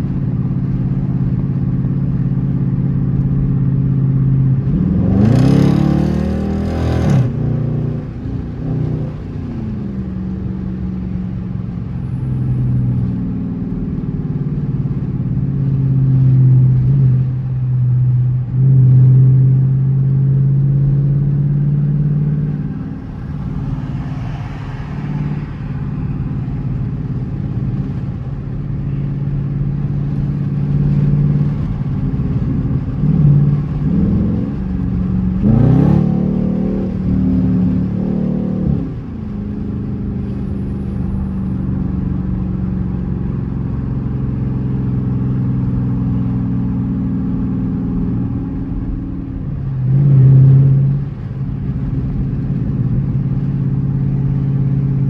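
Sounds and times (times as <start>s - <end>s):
car engine accelerating hard: 0.0s - 55.0s.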